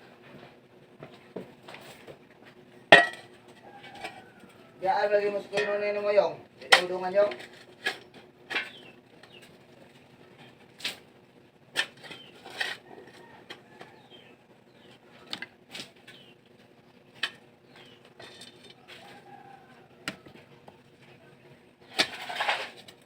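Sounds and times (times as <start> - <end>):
faint bird chirps: 16.0 - 17.0.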